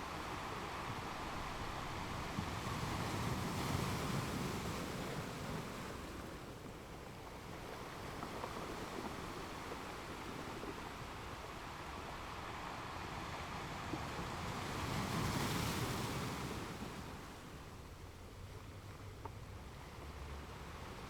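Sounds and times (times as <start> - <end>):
ocean waves breaking: 0.0 - 21.0.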